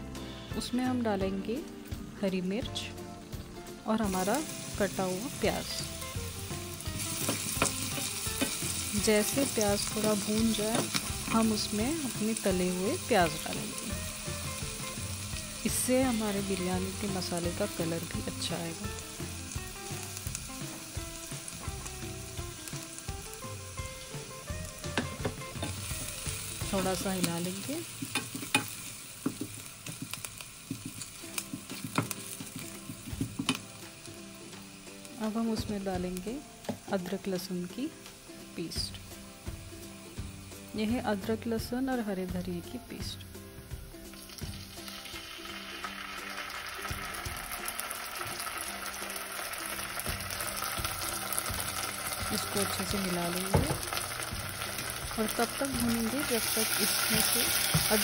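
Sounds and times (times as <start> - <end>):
onion sizzling in hot fat: 3.0 - 58.0
spatula knocking on a pan: 28.0 - 33.6, 53.4 - 53.9.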